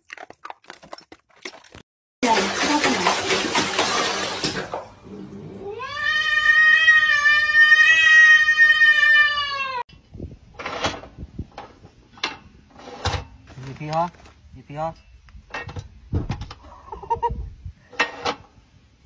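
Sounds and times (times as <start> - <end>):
cat yowling meow: 5.6 - 9.8.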